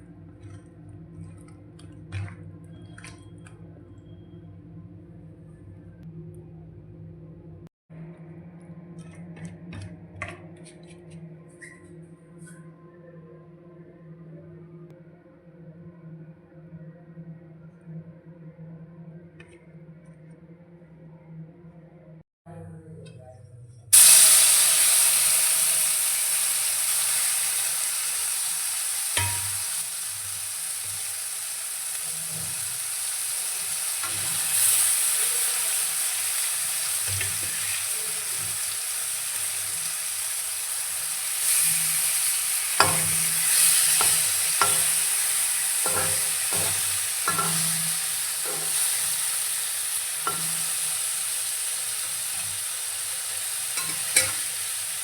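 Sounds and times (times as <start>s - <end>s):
food sizzling in hot oil: 24.0s - 55.0s
utensil scraping a pan: 42.8s - 49.3s.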